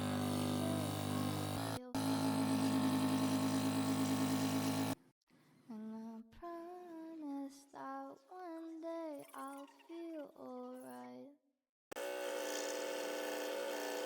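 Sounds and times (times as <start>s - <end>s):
person humming a melody: 0.0s - 2.1s.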